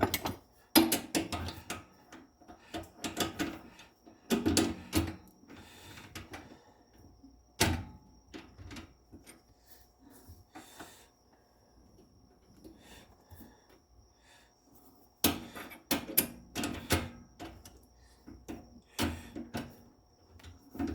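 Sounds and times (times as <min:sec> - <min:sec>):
hand tools clicking and tapping: 0:00.0 - 0:03.6.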